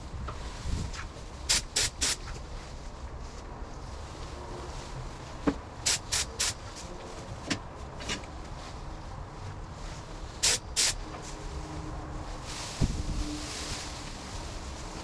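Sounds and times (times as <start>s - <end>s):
spray gun hissing bursts: 1.5s - 2.2s, 5.8s - 6.8s, 10.4s - 11.0s.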